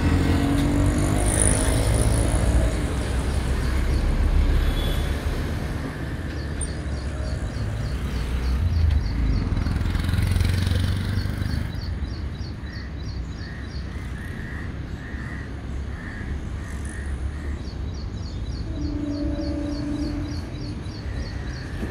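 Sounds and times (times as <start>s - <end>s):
small birds chirping: 6.2s - 21.9s
crows cawing: 13.5s - 17.6s
train horn: 18.6s - 20.5s
electric train rumble: 18.6s - 21.9s.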